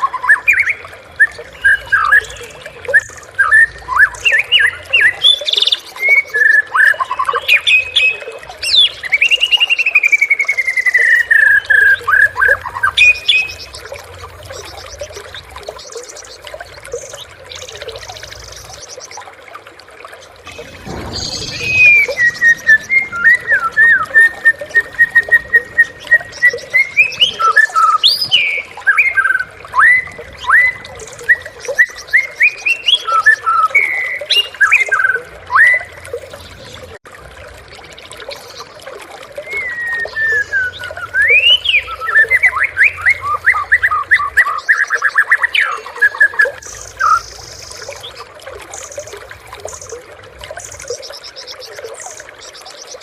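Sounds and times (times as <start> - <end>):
bird singing whistled phrases: 0.0 - 13.9, 20.5 - 36.0, 39.4 - 48.1.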